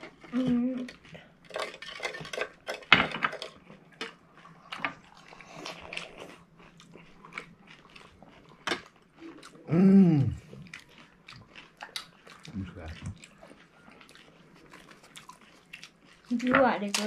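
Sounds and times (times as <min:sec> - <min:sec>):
short vocal sound: 0:09.7 - 0:10.4.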